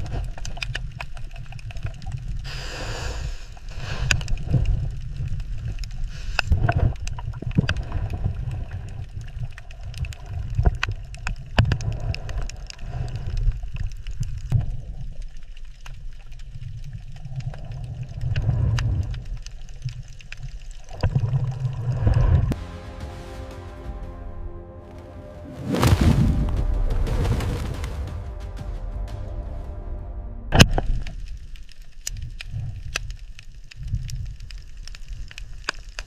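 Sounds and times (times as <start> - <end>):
water gurgling: 4.4 - 22.6
low rumble: 22.3 - 31.7.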